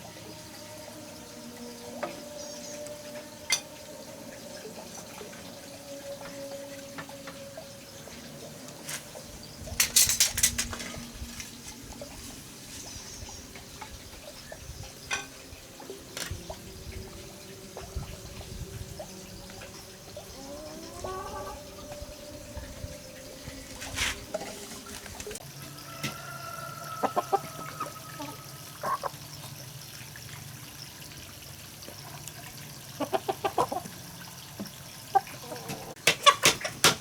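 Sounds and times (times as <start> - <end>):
water being handled: 14.9 - 30.5.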